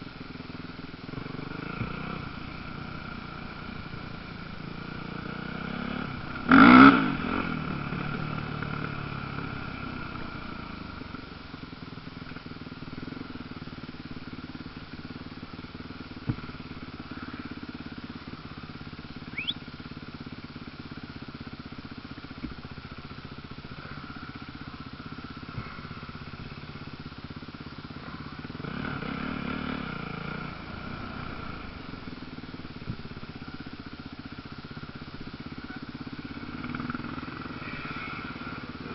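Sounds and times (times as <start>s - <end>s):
drone of distant dirt bikes: 0.0s - 38.9s
dirt bike passing by: 1.1s - 11.3s, 14.7s - 20.4s, 23.2s - 33.6s, 34.8s - 38.9s.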